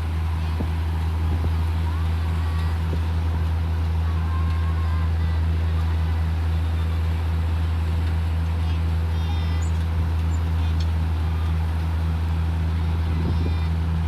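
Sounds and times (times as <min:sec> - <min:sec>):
heavy machine engine droning: 0:00.0 - 0:14.0.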